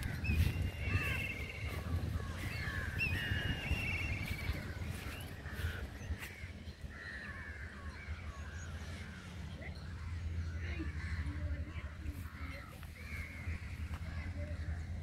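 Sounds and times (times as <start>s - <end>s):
birds chirping and trilling: 0.0s - 15.0s
steady low rumble: 0.0s - 15.0s.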